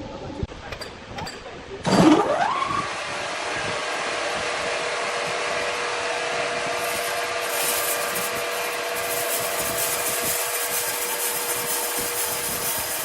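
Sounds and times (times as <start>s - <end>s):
power saw cutting log: 6.6s - 13.0s.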